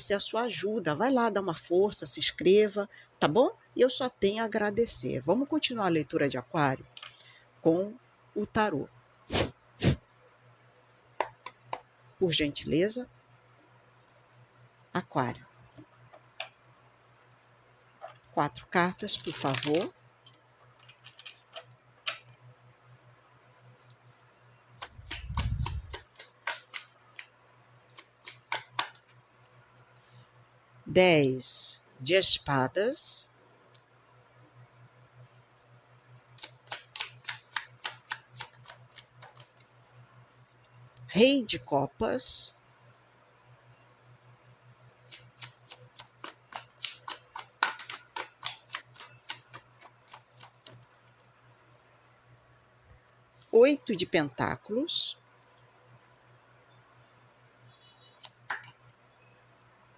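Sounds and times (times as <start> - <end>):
cards snapping and tapping: 24.8 - 27.3, 27.9 - 29.2, 36.4 - 39.5, 45.2 - 50.8, 58.2 - 58.8.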